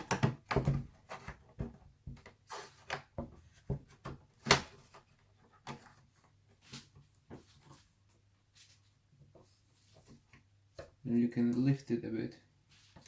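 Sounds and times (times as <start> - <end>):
plastic clicks and knocks: 0.0 - 4.7.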